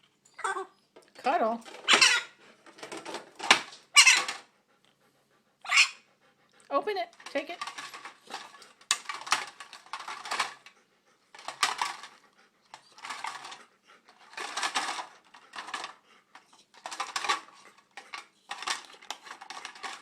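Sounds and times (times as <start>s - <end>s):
plastic cards clattering: 7.2s - 10.6s, 16.8s - 20.0s.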